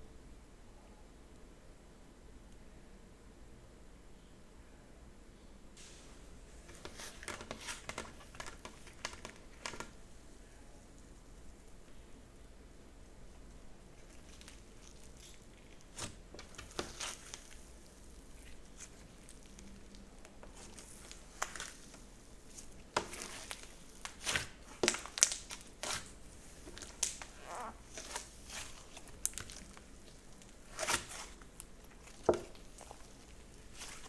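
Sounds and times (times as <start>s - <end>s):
slime popping and crackling: 14.0s - 34.0s.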